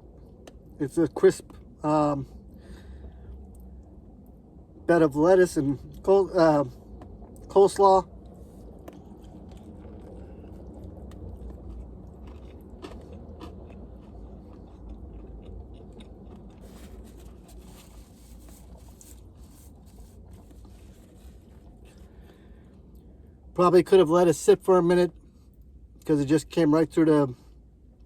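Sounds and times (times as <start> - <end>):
low hum: 0.0 - 23.8
person chewing crunchy food: 8.1 - 23.1.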